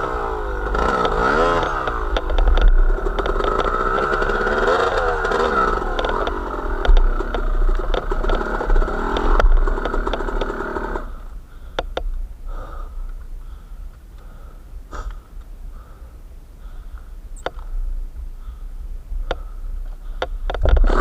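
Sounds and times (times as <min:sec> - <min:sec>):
small vehicle engine running: 0:00.0 - 0:11.3, 0:20.6 - 0:21.0
sharp clicks: 0:00.7 - 0:11.0, 0:11.7 - 0:12.2, 0:17.0 - 0:17.7.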